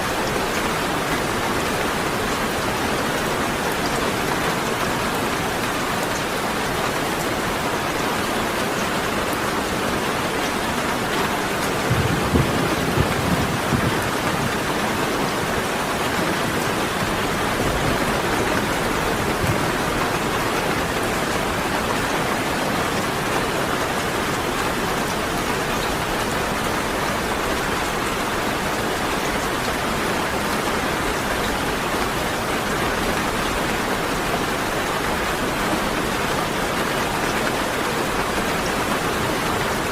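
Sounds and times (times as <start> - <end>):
steady rain falling: 0.0 - 39.9
low rumble of thunder: 11.6 - 15.8, 16.4 - 20.2.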